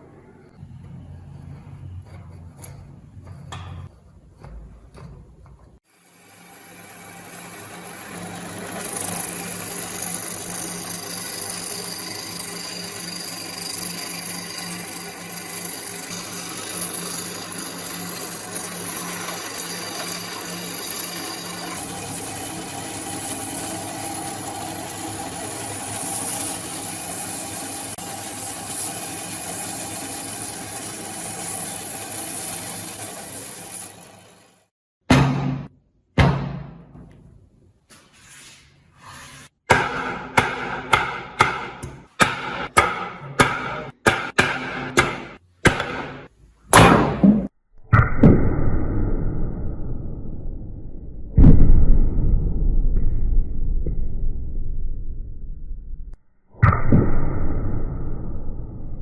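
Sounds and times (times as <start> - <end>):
electric power tool motor: 6.0 - 34.7.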